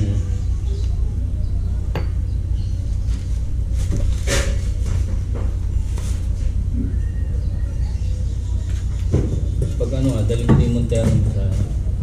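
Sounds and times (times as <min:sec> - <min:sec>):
steady low rumble: 0:00.0 - 0:12.0
sharp knocks: 0:09.1 - 0:11.3.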